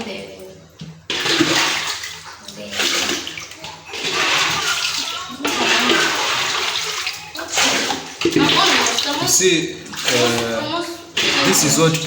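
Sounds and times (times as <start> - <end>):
water pouring into a bucket: 1.0 - 12.0.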